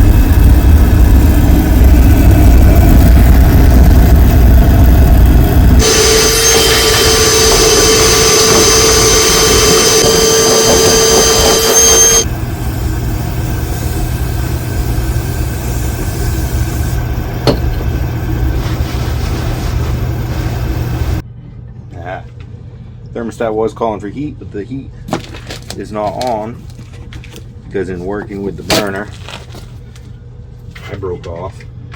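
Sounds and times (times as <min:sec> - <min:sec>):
oil burner roaring: 0:00.0 - 0:21.3
low hum: 0:00.0 - 0:23.2.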